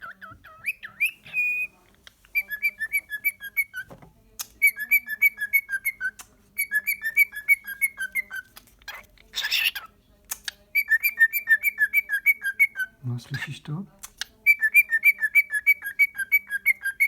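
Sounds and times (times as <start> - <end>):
cockatiel whistling: 0.0 - 1.7, 4.6 - 8.4, 14.5 - 17.0
sharp clicks: 10.3 - 10.6.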